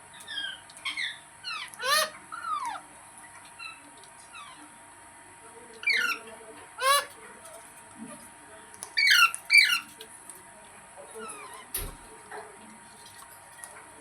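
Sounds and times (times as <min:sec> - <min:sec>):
parrot chirps: 0:00.2 - 0:02.8, 0:05.8 - 0:06.2, 0:06.8 - 0:07.1, 0:09.0 - 0:10.0
parrot screeching: 0:00.3 - 0:02.8, 0:05.8 - 0:06.2, 0:06.8 - 0:07.2, 0:09.0 - 0:10.0.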